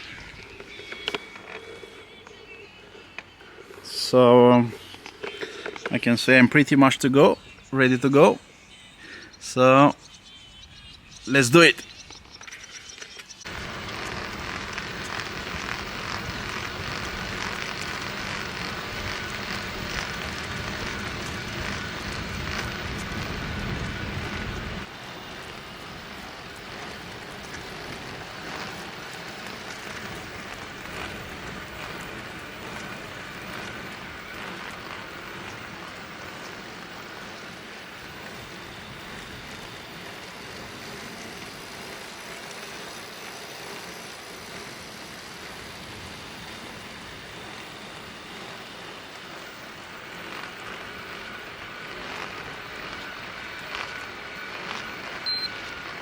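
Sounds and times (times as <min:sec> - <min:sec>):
drivetrain running: 0:00.0 - 0:08.3, 0:11.2 - 0:56.0
tyres rolling on road: 0:00.0 - 0:08.4, 0:11.3 - 0:56.0
faint high whine: 0:00.0 - 0:56.0.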